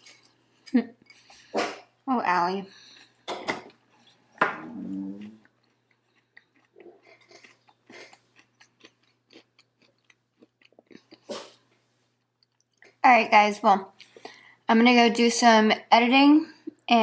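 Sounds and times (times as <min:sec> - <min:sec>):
person chewing food: 0:02.7 - 0:13.0, 0:13.9 - 0:14.6.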